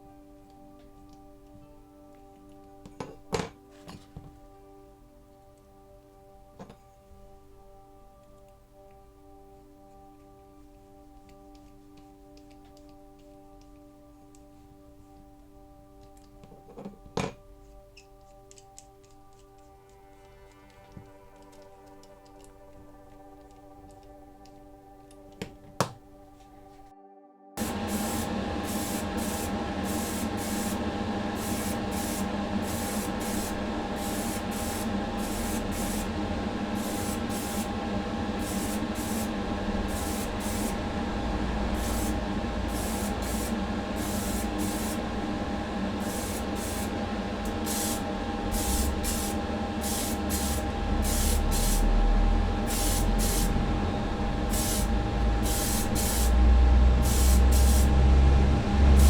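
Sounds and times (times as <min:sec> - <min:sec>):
paint spray hissing bursts: 0:27.6 - 0:37.8, 0:38.4 - 0:40.8, 0:41.7 - 0:45.2, 0:46.0 - 0:52.0, 0:52.6 - 0:53.6, 0:54.5 - 0:56.4, 0:57.0 - 0:58.0
steady hum: 0:27.6 - 0:59.0
low rumble: 0:39.4 - 0:46.0, 0:50.6 - 0:59.0.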